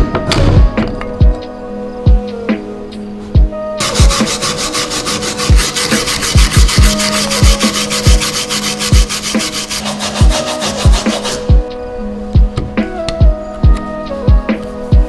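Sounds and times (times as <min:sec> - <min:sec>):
steady tones: 0:03.5 - 0:13.0
scrubbing rust off metal: 0:03.8 - 0:11.5.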